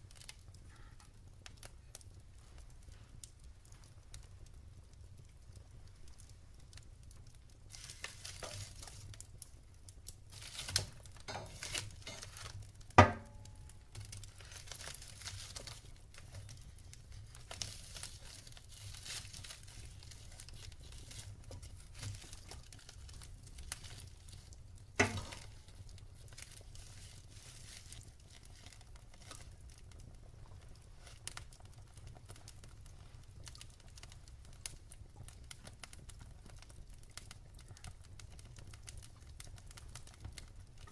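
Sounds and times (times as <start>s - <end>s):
sharp pops from fire: 0.0s - 40.9s
wood fire crackling: 0.0s - 40.9s.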